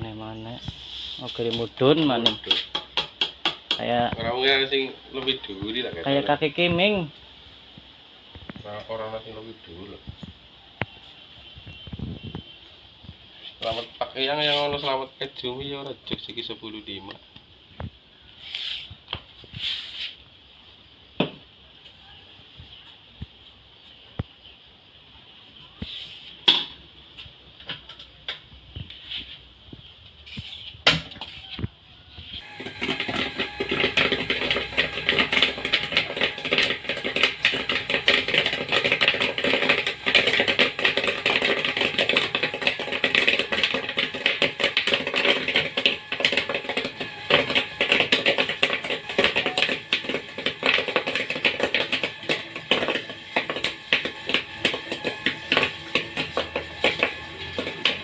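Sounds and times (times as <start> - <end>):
popcorn popping: 0.0 - 7.1, 32.4 - 58.0.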